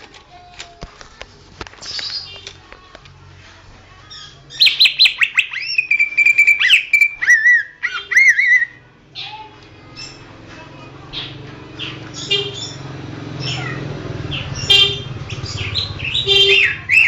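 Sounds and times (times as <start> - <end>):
bird singing whistled phrases: 4.2 - 9.4.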